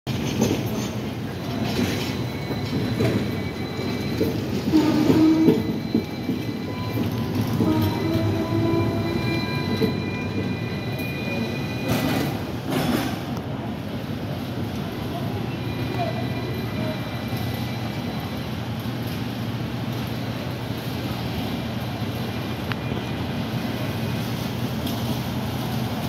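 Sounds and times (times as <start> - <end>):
wheels clacking over rail joints: 0.1 - 13.5
tram wheels rumbling on rails: 0.1 - 26.0.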